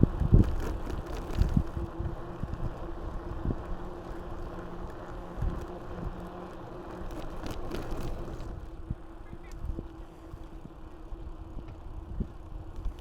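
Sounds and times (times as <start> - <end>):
wind on microphone: 0.0 - 3.8, 11.5 - 13.0
bike tyre hum: 0.0 - 13.0.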